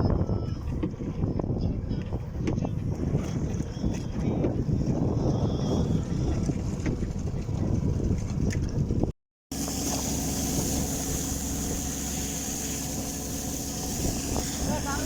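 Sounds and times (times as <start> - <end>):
wind buffeting microphone: 0.0 - 9.1, 12.9 - 15.0
boat engine running: 0.0 - 15.0.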